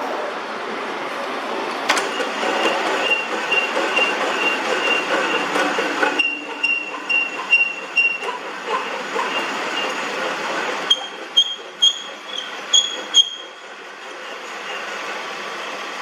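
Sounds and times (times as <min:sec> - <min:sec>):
metal lathe cutting iron: 0:01.9 - 0:15.9
pulsing high squeal: 0:06.2 - 0:10.0, 0:10.8 - 0:14.8.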